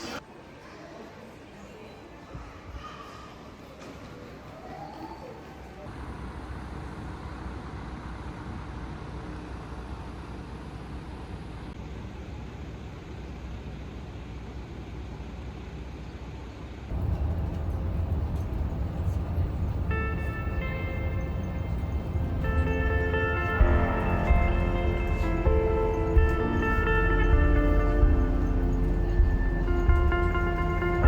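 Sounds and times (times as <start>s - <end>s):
moving vehicle rumble: 14.9s - 31.0s
music: 19.8s - 31.0s.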